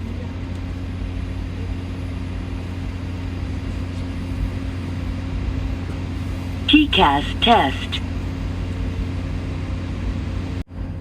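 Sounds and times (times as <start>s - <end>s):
low ventilation hum: 6.3s - 8.4s.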